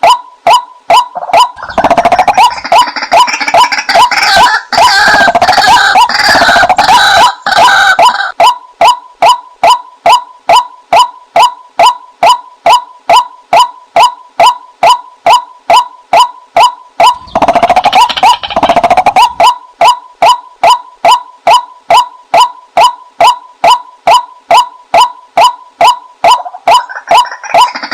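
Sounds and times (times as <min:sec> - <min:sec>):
waterhen falling call notes: 0:00.0 - 0:27.9
waterhen fast chattering: 0:01.2 - 0:08.3, 0:17.0 - 0:19.5.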